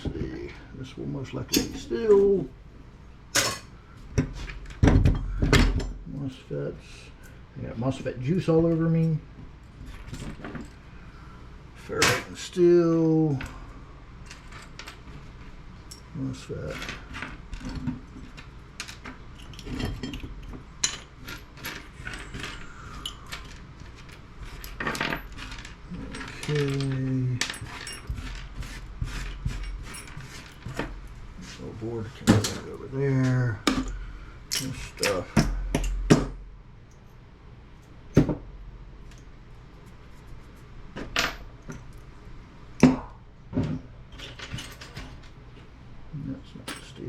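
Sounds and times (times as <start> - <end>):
parts knocking on workbench: 4.2 - 5.9, 35.3 - 36.4.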